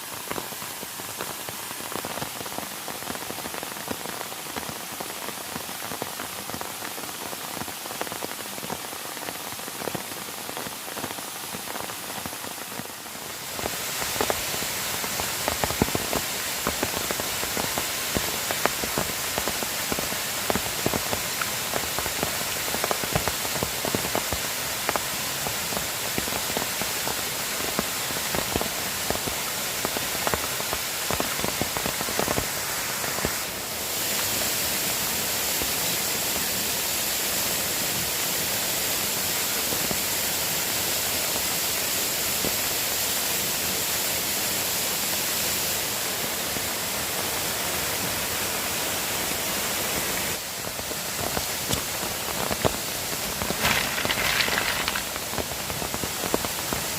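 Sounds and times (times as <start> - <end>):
heavy rain falling: 0.0 - 56.9
raindrops ticking sharply: 51.2 - 56.5.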